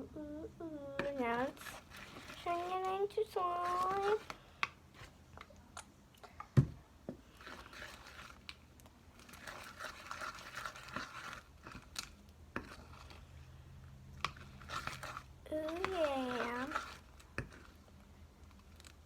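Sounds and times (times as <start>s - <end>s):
spoon stirring slime: 0.6s - 19.0s.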